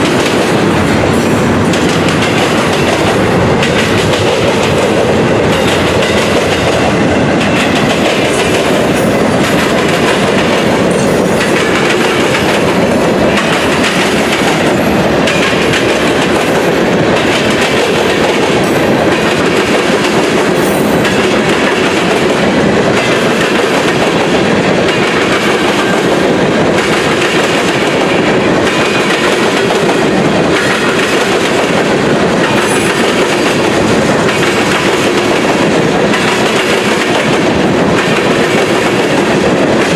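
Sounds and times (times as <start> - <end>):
train wheels clicking over rail joints: 0.0 - 39.9.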